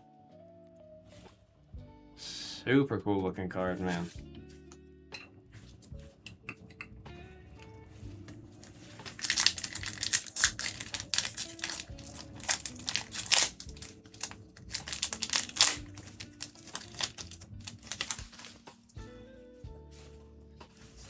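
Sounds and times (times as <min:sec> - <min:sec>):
foil wrapper crinkling and tearing: 0:08.6 - 0:19.0.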